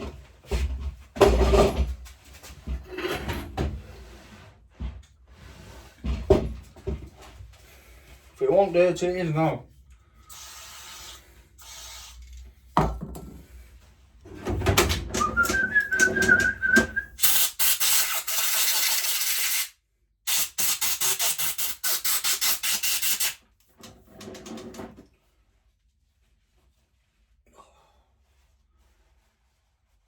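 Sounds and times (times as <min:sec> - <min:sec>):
man whistling: 0:15.2 - 0:17.2.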